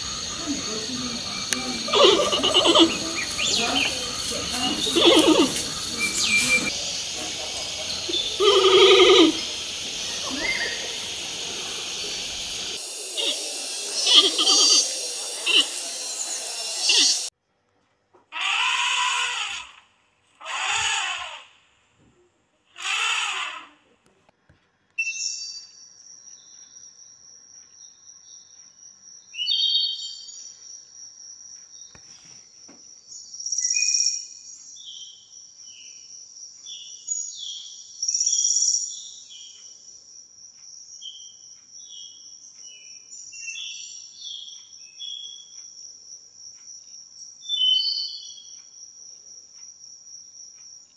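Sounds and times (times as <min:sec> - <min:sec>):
bird chirps and calls: 0:00.0 - 0:17.3, 0:47.5 - 0:48.4
high-pitched insect trill: 0:00.0 - 0:17.3.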